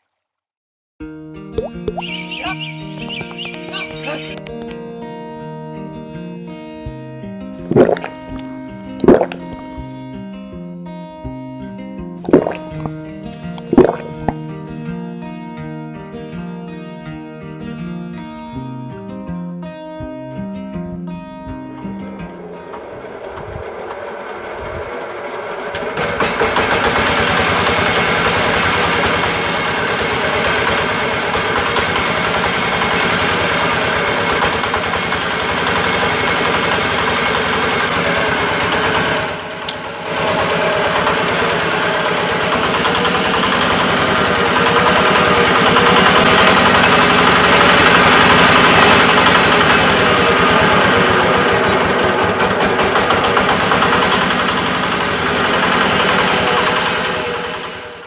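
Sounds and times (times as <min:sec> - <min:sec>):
small motor running: 0:21.8 - 0:58.0.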